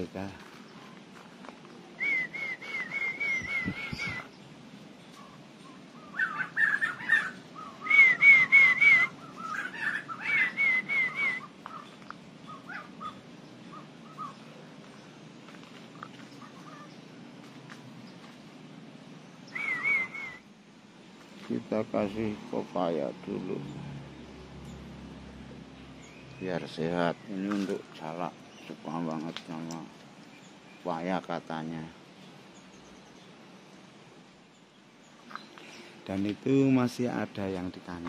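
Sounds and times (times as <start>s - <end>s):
bird warbling whistle: 2.0s - 4.4s, 5.2s - 11.8s, 19.5s - 20.5s
bird chattering: 5.1s - 15.0s, 15.9s - 17.1s, 19.4s - 20.4s.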